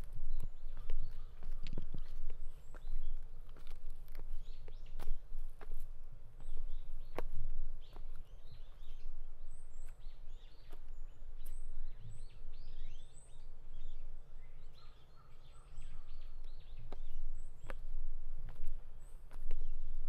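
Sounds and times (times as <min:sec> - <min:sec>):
footstep clicks: 0:00.0 - 0:08.9, 0:16.4 - 0:19.8
small birds chirping: 0:00.0 - 0:20.0.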